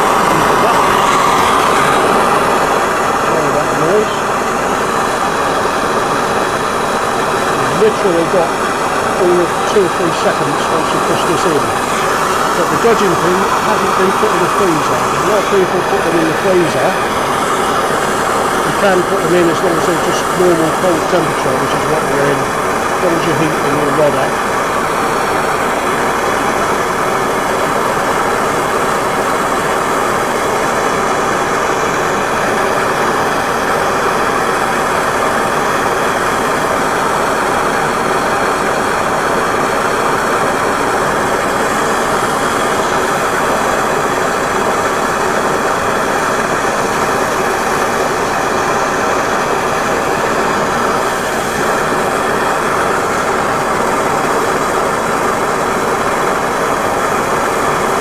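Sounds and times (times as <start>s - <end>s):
gas torch flame burning: 0.0s - 27.7s.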